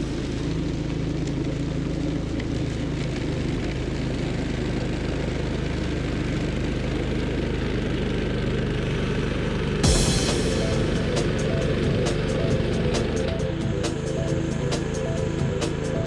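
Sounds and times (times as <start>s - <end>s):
sudden loud noise: 9.8s - 16.0s.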